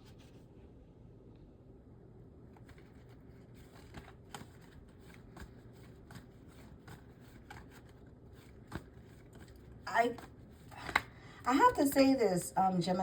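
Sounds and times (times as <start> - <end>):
shuffling cards: 2.5 - 11.2.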